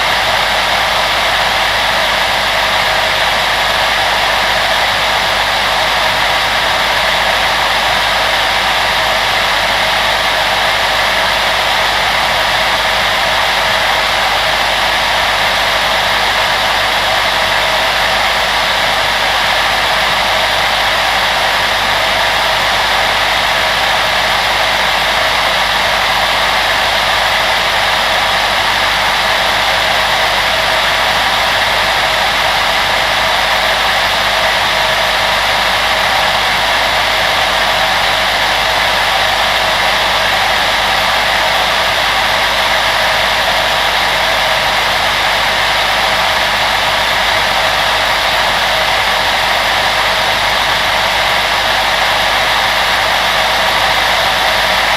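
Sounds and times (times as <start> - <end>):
blower fan whirring: 0.0 - 54.9.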